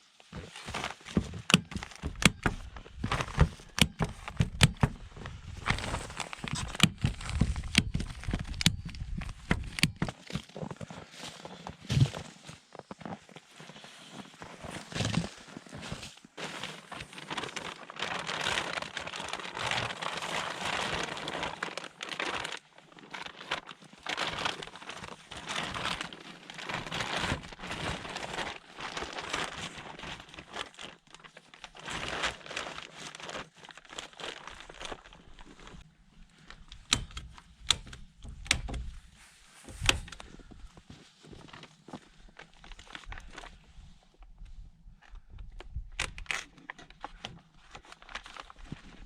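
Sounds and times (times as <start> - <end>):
plastic tarpaulin crinkling: 0.0 - 49.0
sharp clicks or knocks: 36.8 - 39.0.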